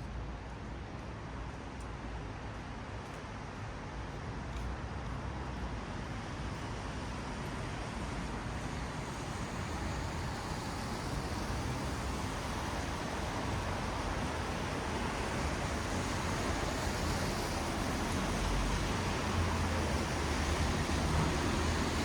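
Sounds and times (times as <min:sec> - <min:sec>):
low traffic rumble: 0:00.2 - 0:22.0
tyres hissing on wet road: 0:05.9 - 0:22.0.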